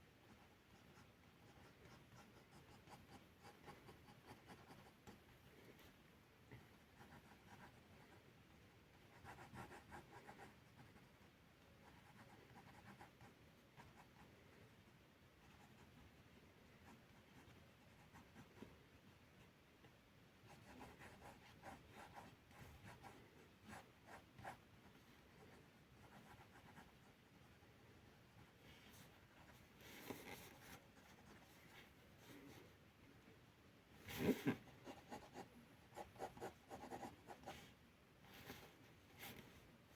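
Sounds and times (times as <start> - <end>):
low background hiss: 0.0 - 39.9
pencil scratching on paper: 0.3 - 5.2, 6.8 - 8.1, 8.9 - 11.2, 11.8 - 14.3, 20.5 - 27.6, 34.1 - 37.7.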